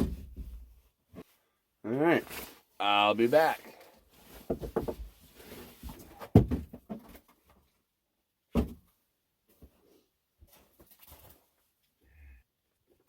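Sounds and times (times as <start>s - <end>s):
knocks and thumps: 4.4s - 5.2s, 6.2s - 7.2s.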